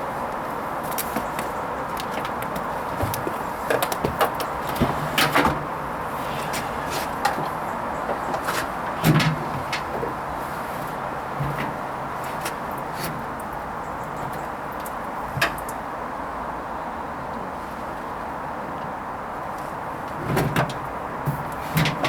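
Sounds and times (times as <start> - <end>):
water and laundry sloshing: 0.1 - 15.7.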